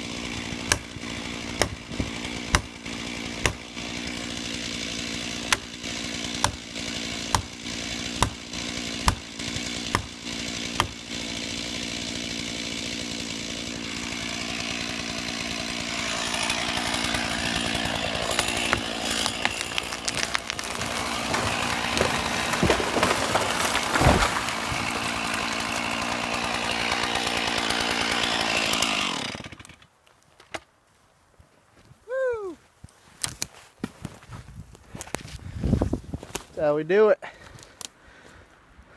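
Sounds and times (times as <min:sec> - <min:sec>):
chainsaw running: 0:00.0 - 0:29.8
chainsaw cutting into wood: 0:00.0 - 0:29.9.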